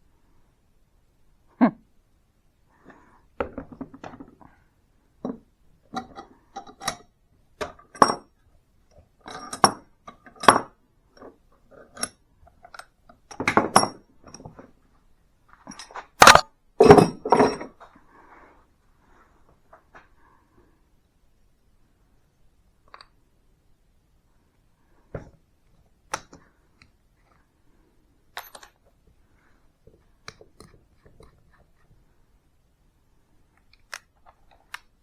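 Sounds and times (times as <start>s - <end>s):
metallic clinks and knocks of tools: 9.3s - 10.7s, 12.7s - 14.5s, 15.7s - 17.7s, 28.4s - 28.8s.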